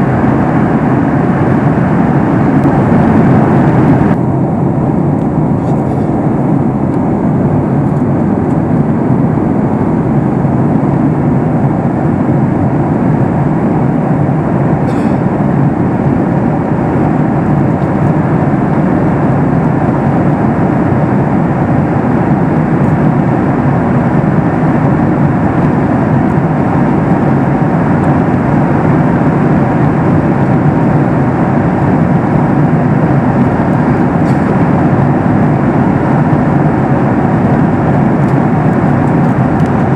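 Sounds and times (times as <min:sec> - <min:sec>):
airplane cabin engine roar: 0:00.0 - 0:39.9.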